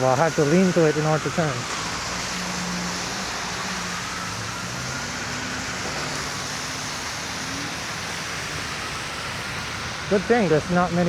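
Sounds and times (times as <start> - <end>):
tyres hissing on wet pavement: 0.0 - 11.0.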